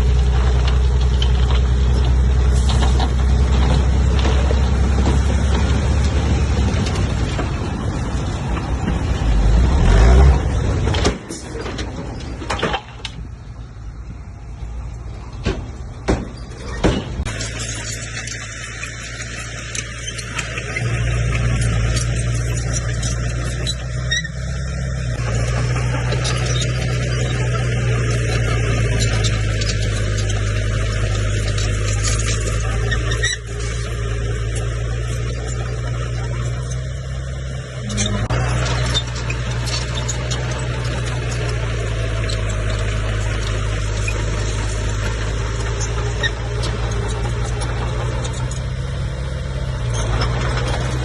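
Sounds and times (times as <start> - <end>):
bulldozer diesel engine running: 0.0 - 51.0
sharp knocks: 15.4 - 17.3.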